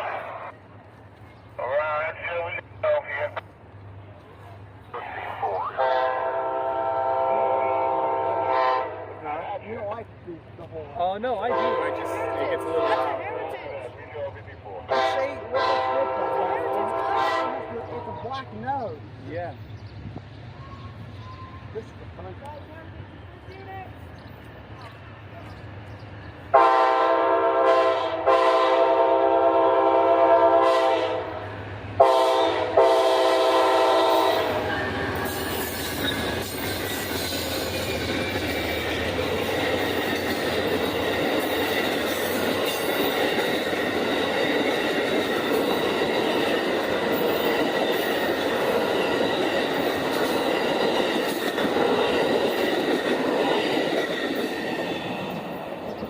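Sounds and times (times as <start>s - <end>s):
locomotive air horn blasts: 5.8s - 9.1s, 11.5s - 13.2s, 14.9s - 17.7s, 26.5s - 31.4s, 32.0s - 34.6s
wheels clacking over rail joints: 34.5s - 56.0s
high wheel squeal: 34.6s - 38.8s.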